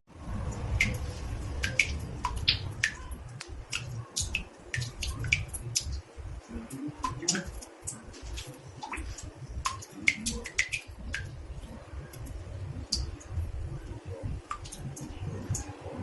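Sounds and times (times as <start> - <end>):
low steady rumble: 0.1 - 16.0
water drops plinking into bathtub: 0.4 - 15.8.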